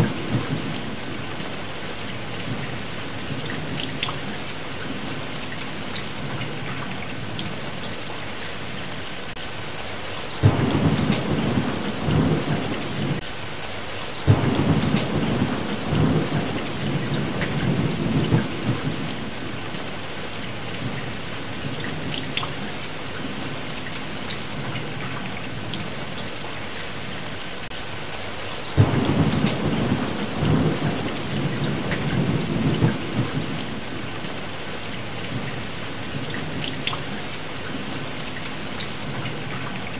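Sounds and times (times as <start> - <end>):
steady rain: 0.0 - 39.9
rolling thunder: 10.4 - 13.2, 14.3 - 19.4, 28.8 - 34.1.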